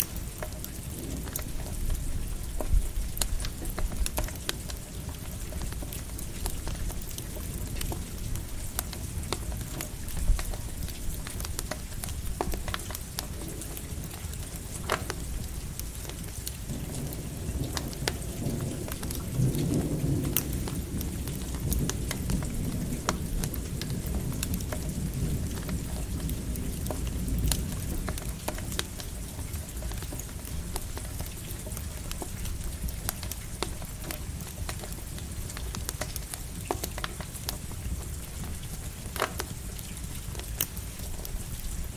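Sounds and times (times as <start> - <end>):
campfire crackling and popping: 0.0 - 41.9
steady rain: 0.0 - 41.9
distant thunder rumbling: 16.6 - 28.9.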